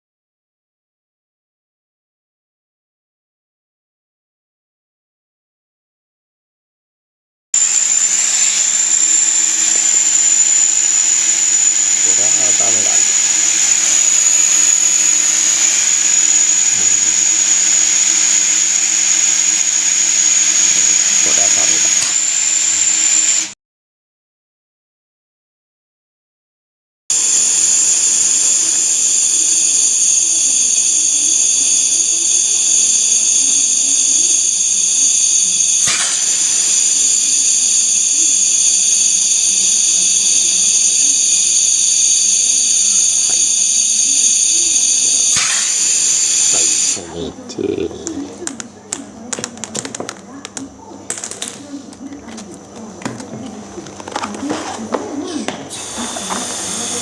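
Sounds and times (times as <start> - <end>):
high-pitched air hiss: 7.6 - 23.6, 27.1 - 48.1, 55.4 - 57.0
high-pitched electric motor whine: 7.6 - 23.6, 27.1 - 47.9, 55.4 - 57.0.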